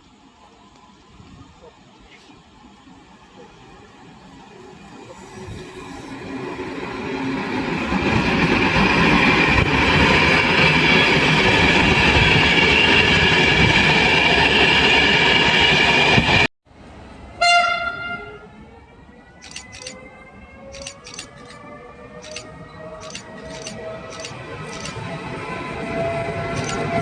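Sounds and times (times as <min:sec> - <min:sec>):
train horn blast: 0:17.4 - 0:18.6
train wheels rumbling: 0:20.6 - 0:27.0.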